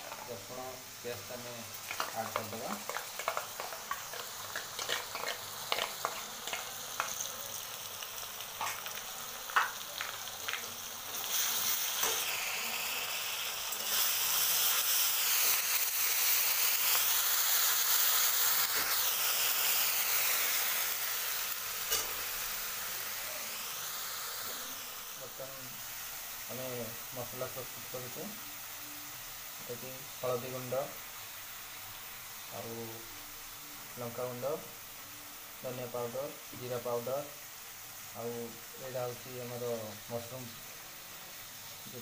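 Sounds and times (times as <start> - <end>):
food sizzling in oil: 0.0 - 42.0
spatula scraping a pan: 1.9 - 6.6.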